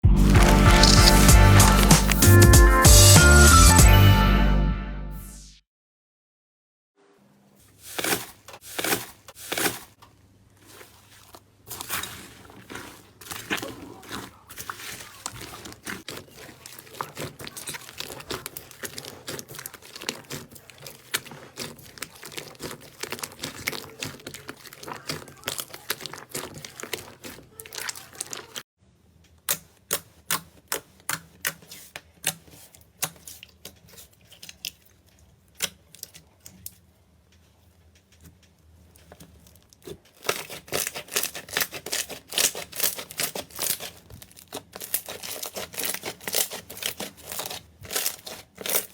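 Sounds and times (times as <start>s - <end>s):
slime crackling and popping: 0.2s - 2.4s, 10.6s - 28.6s, 39.0s - 48.9s.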